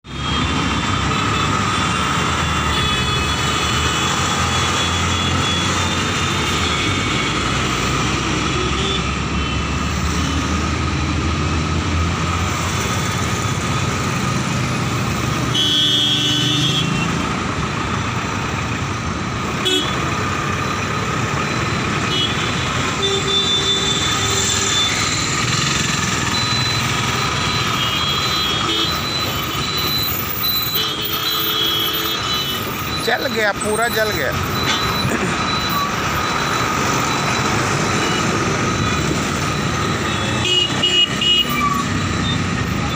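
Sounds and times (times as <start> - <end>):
roadside traffic noise: 0.0 - 42.9
vehicle horn: 15.5 - 17.1, 19.6 - 20.0, 22.1 - 25.0, 40.1 - 41.6.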